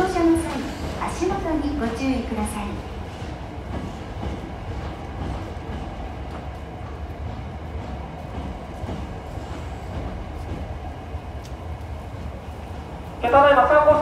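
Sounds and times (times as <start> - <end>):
electric train rumbling: 0.0 - 14.0
faint clicks: 11.4 - 11.9.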